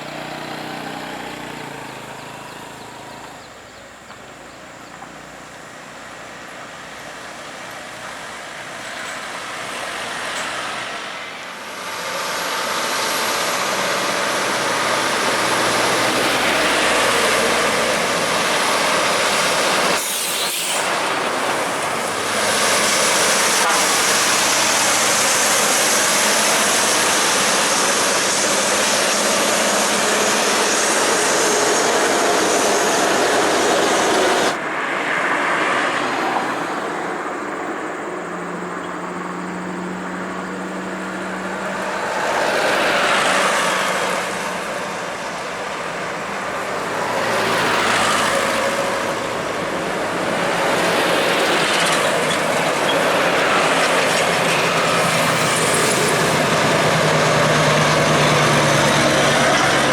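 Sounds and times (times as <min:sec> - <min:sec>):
heavy trucks driving by: 0:00.0 - 0:59.9
vehicles passing: 0:00.0 - 0:59.9
low engine drone: 0:12.3 - 0:34.6.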